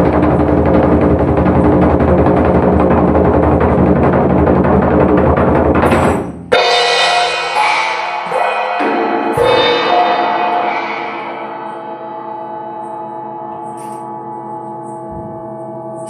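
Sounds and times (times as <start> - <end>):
dense metal percussion wash: 0.0 - 16.0
struck bells and singing bowls ringing: 6.6 - 16.0.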